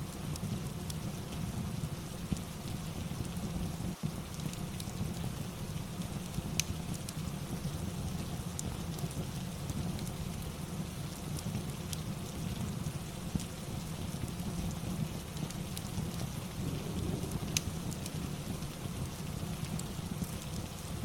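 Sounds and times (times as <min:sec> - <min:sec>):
steady rain: 0:00.0 - 0:21.0
sharp crackles: 0:15.4 - 0:20.6
deep low rumble: 0:16.5 - 0:18.7.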